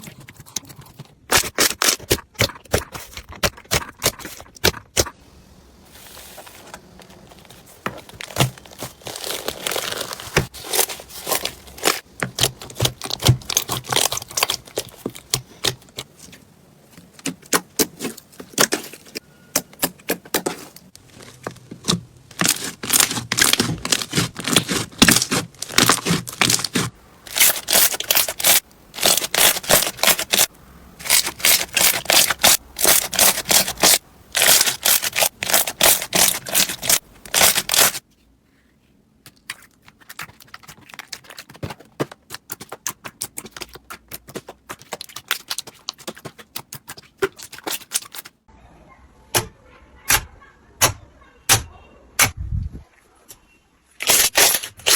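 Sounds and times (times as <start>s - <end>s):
slime squeezed crackling: 7.6s - 16.2s, 21.2s - 38.0s.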